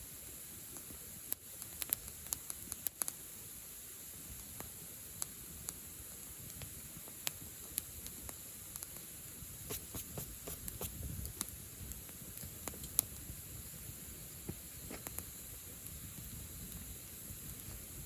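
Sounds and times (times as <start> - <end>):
wood fire crackling and popping: 0.7 - 3.2, 6.4 - 9.1, 9.7 - 18.0.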